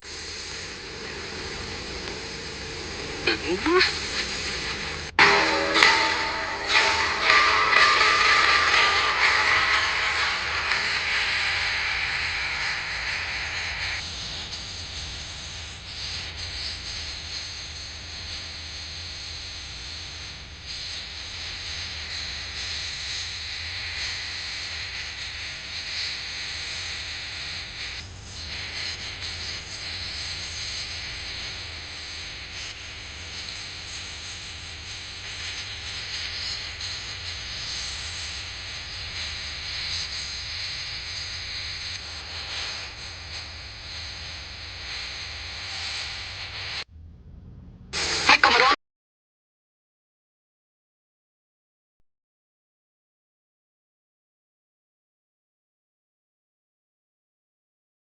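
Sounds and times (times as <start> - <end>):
steady hiss: 0.0 - 46.8, 48.0 - 48.8
low hum: 0.1 - 14.0, 46.8 - 48.8
music: 1.6 - 14.0.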